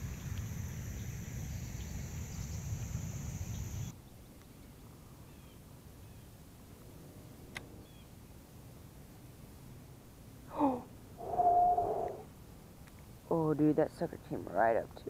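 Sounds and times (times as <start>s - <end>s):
faint bird chirps: 11.2s - 12.3s
low rumble on microphone: 11.2s - 12.3s.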